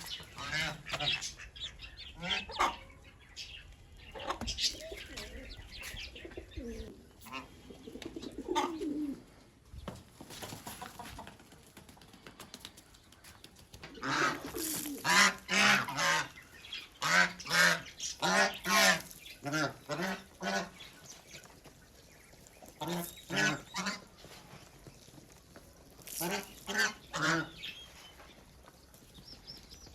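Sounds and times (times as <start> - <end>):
ducks quacking: 0.0 - 3.0, 14.0 - 20.9, 22.7 - 24.2, 26.2 - 27.7.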